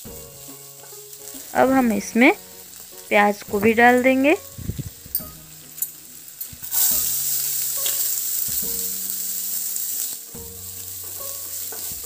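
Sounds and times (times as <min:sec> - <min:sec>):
onions sizzling in hot oil: 0:00.0 - 0:12.0
spatula scraping and tapping pan: 0:00.4 - 0:01.5, 0:11.0 - 0:12.0.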